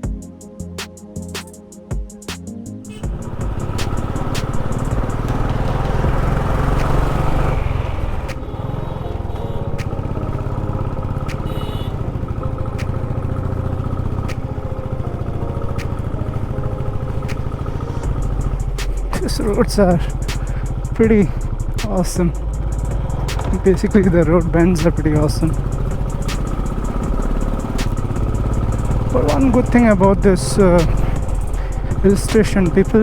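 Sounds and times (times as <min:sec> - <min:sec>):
motorcycle engine under load: 0:03.0 - 0:33.0.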